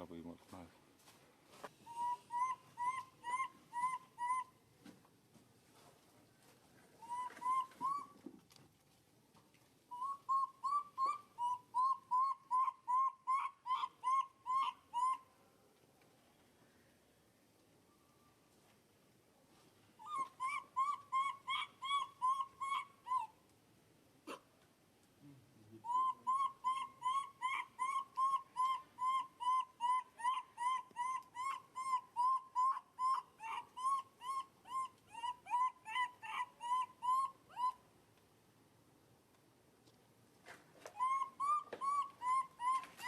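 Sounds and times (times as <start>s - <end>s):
animal yelping calls: 1.9s - 4.6s, 7.0s - 8.2s, 9.9s - 15.3s, 20.0s - 23.4s, 25.8s - 37.8s, 40.8s - 43.0s.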